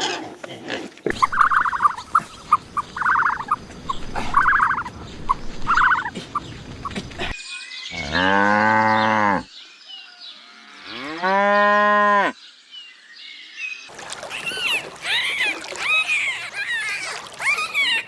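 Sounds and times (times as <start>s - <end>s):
quick high-pitched calls: 1.1s - 6.1s.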